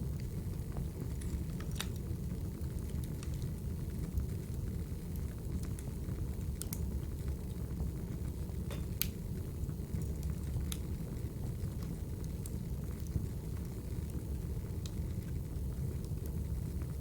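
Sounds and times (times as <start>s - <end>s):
fire popping and snapping: 0.0s - 17.0s
low rumble of flames: 0.0s - 17.0s.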